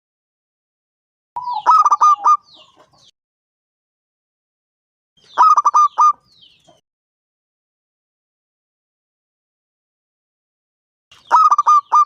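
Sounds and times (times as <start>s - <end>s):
dove cooing: 1.4s - 2.9s, 5.4s - 6.2s, 11.3s - 12.0s.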